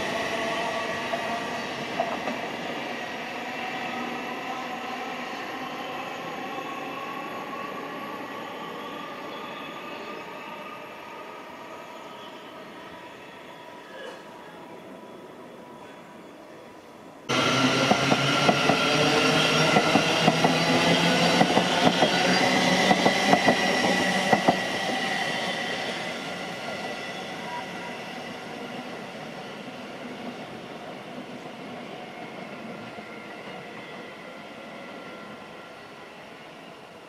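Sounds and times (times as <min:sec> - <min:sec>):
train running noise: 0:17.3 - 0:29.1.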